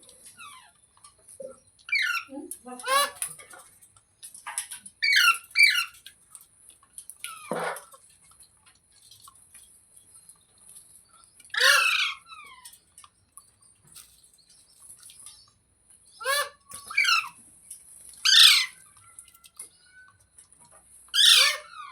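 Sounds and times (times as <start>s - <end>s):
parrot squawking: 1.9s - 3.2s, 5.0s - 6.0s, 11.5s - 12.6s, 16.2s - 17.4s, 18.2s - 18.8s, 21.1s - 21.9s.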